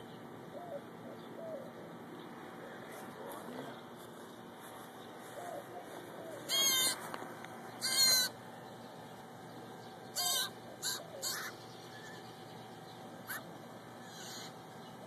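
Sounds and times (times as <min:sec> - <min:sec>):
bird calling: 0:00.0 - 0:02.0, 0:05.2 - 0:15.0.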